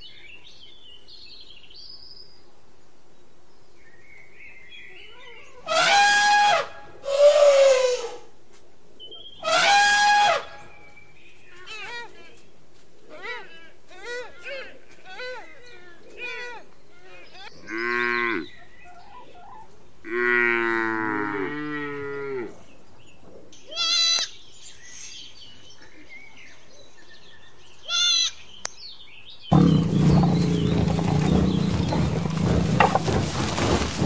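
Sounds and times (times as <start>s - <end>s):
goats bleating: 23.6s - 24.4s, 27.9s - 28.4s
loud rough rumbling: 29.5s - 34.0s.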